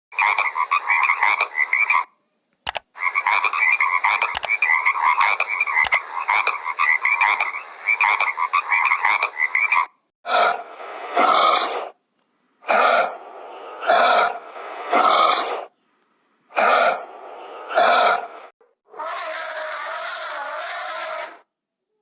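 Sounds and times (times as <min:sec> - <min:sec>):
animal rapid pulsed calls: 0:00.1 - 0:02.1, 0:03.0 - 0:12.0, 0:16.6 - 0:21.5.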